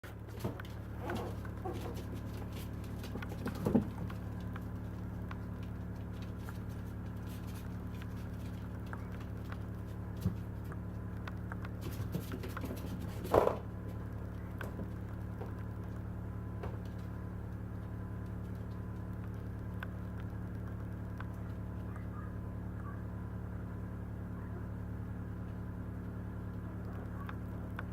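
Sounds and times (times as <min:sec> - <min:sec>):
electrical hum: 0:00.0 - 0:27.9
puppies moving about: 0:00.1 - 0:16.0.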